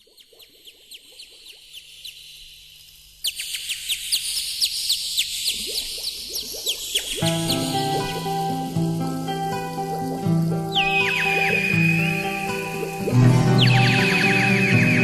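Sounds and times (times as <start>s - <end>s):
birds chirping: 5.2s - 15.0s
steady high hiss: 6.9s - 15.0s.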